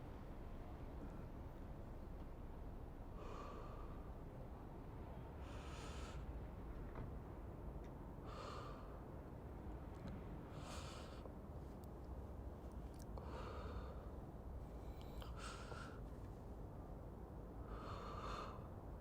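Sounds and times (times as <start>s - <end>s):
city ambience: 0.0s - 19.0s.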